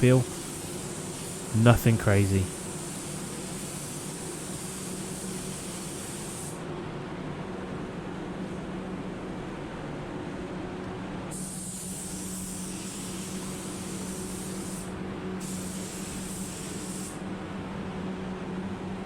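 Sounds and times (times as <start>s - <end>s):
paint spray gun hissing: 0.0s - 6.6s, 11.3s - 17.2s.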